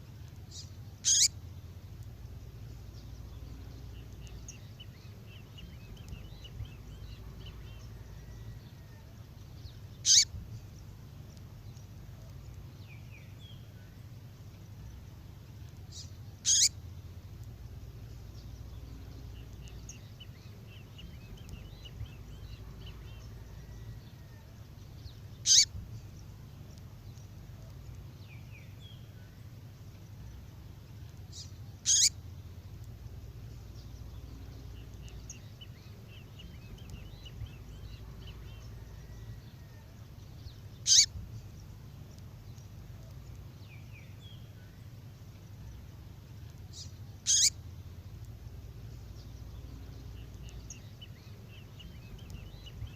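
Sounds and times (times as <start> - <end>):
low hum: 0.0 - 52.9
soft bird chirps: 0.0 - 52.9.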